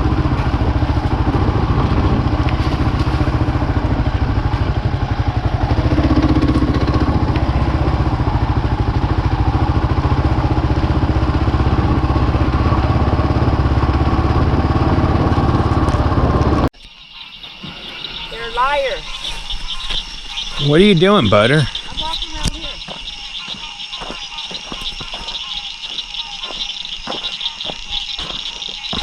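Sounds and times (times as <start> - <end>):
motorcycle engine running: 0.0 - 16.7.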